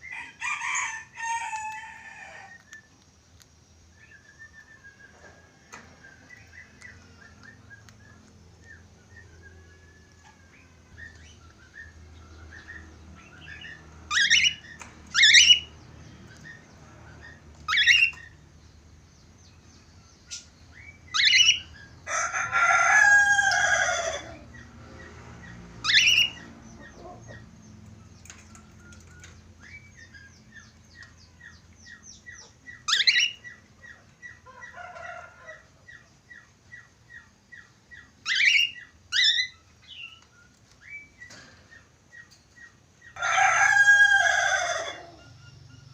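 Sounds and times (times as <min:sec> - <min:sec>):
rooster crowing: 0:00.0 - 0:02.6, 0:22.0 - 0:24.6, 0:34.5 - 0:35.8, 0:43.2 - 0:45.6
budgerigars chattering: 0:16.5 - 0:18.4, 0:25.8 - 0:27.5.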